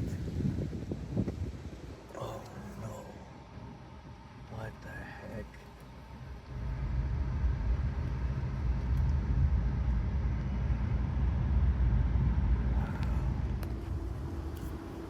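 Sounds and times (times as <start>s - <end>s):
low steady rumbling: 0.0s - 15.0s.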